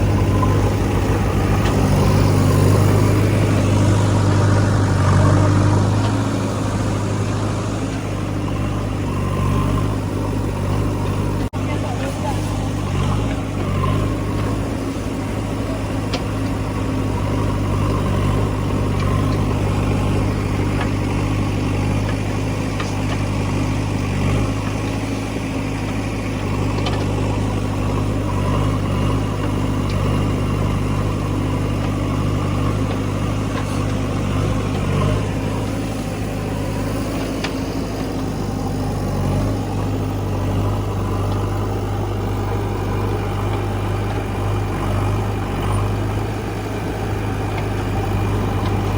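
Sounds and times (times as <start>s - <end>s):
diesel engine idling: 0.0s - 48.9s.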